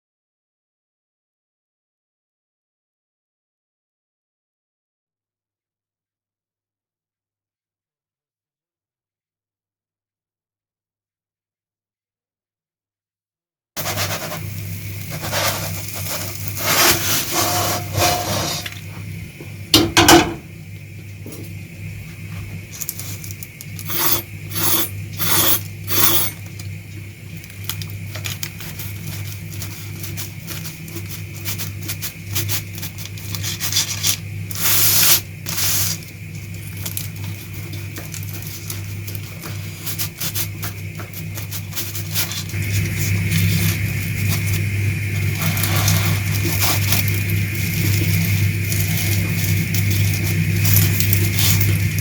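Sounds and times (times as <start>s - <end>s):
utensil scraping a cooking pan: 13.8s - 19.1s, 22.8s - 26.6s, 28.2s - 52.0s
steady low hum: 13.8s - 52.0s.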